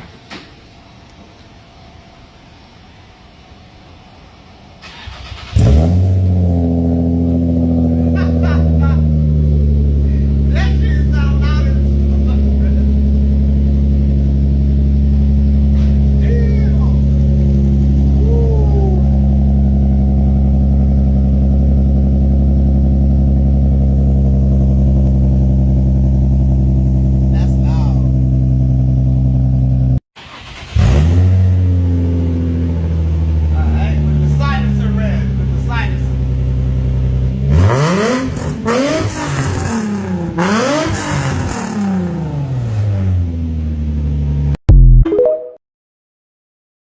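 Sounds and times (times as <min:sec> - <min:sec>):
car engine idling loudly: 0:06.4 - 0:30.0, 0:30.8 - 0:44.6.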